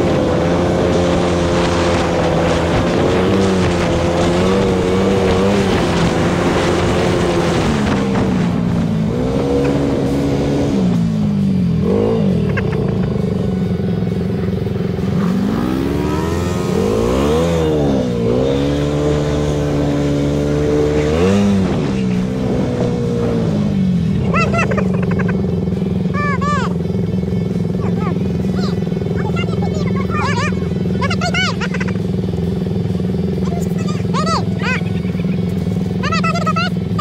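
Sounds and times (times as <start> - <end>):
atv engine revving: 0.0 - 37.0.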